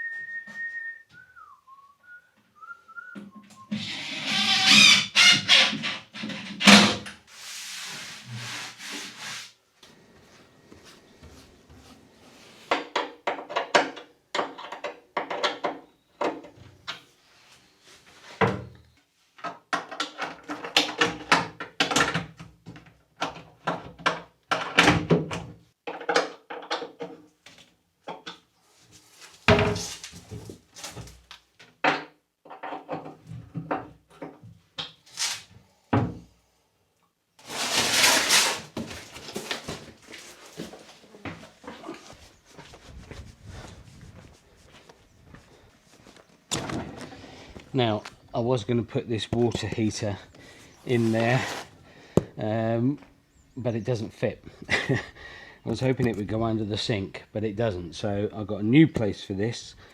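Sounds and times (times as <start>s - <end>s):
wooden parts knocking and scraping: 12.7s - 16.6s.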